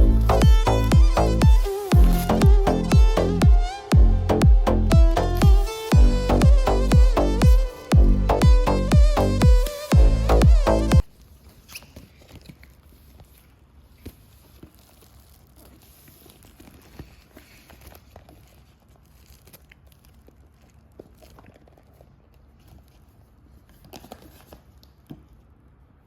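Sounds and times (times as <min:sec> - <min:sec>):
packaging crinkling: 0:00.2 - 0:02.8, 0:11.1 - 0:25.1.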